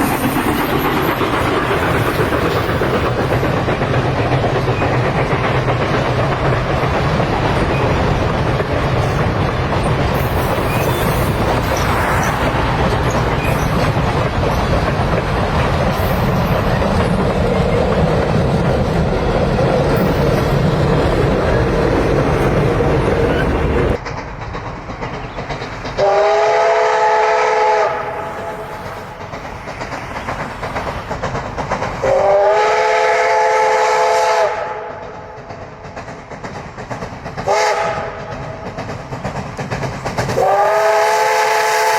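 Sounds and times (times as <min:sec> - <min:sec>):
train rumbling on rails: 0:00.0 - 0:41.9
train whistle blasts: 0:26.0 - 0:28.6, 0:32.0 - 0:35.0, 0:37.5 - 0:38.2, 0:40.4 - 0:41.9.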